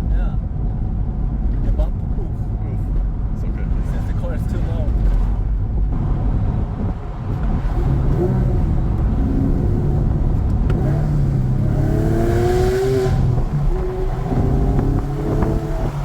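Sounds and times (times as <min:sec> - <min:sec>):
sports car engine accelerating hard: 0:05.1 - 0:16.0.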